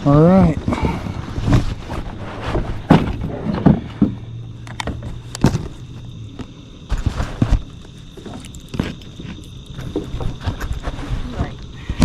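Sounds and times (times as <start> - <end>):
low steady hum: 0.0 - 12.0
knocks and clunks in kayak: 1.4 - 5.9.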